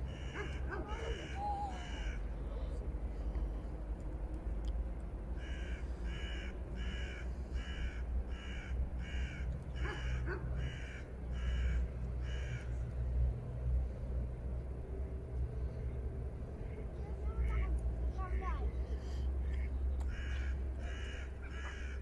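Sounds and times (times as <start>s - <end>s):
bird calling: 0.0s - 2.3s, 5.4s - 12.7s, 19.4s - 22.0s.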